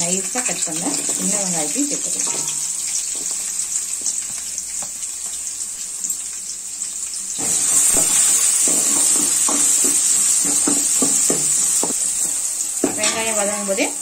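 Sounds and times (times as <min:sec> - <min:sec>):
shallots sizzling in hot oil: 0:00.0 - 0:14.0
metal ladle scraping pan: 0:02.1 - 0:03.7.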